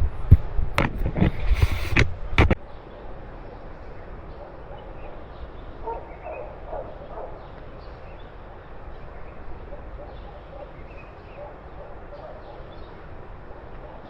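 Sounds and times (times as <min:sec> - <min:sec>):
dog barking faintly: 0:04.3 - 0:07.6, 0:09.6 - 0:14.0.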